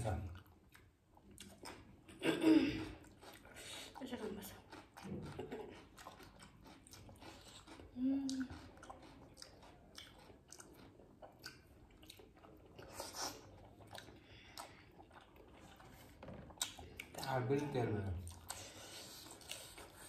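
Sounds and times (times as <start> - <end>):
person chewing: 0.1 - 20.0
wet mouth clicks and smacks: 0.3 - 2.0, 6.0 - 15.5.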